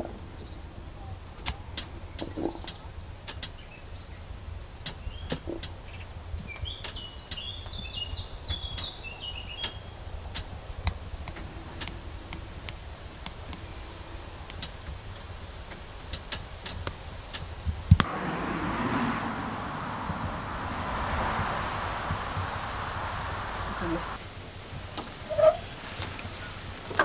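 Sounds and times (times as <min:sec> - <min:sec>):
small bird chirping: 0:02.1 - 0:10.0
low steady rumble: 0:18.0 - 0:24.9.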